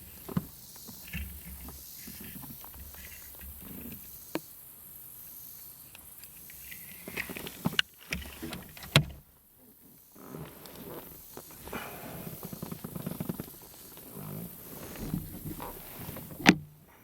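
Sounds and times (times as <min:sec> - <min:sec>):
low steady background noise: 0:00.0 - 0:17.0
sharp knocks in a kayak: 0:07.7 - 0:09.2, 0:14.9 - 0:16.8.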